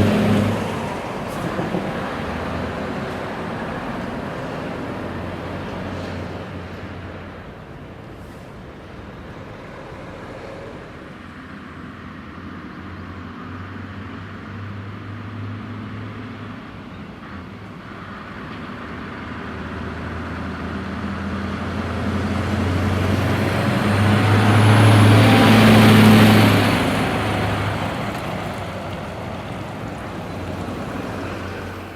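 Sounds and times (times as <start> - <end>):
truck engine running: 21.5 - 31.9.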